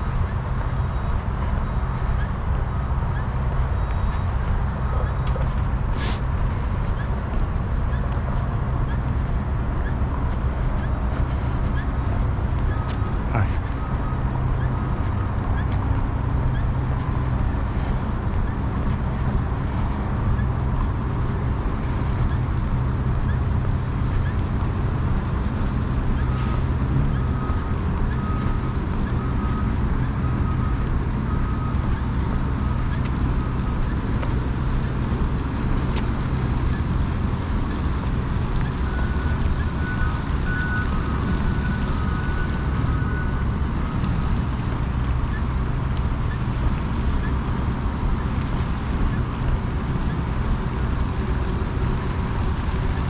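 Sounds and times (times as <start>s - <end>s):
motor vehicle engine rumbling: 0.0s - 53.0s.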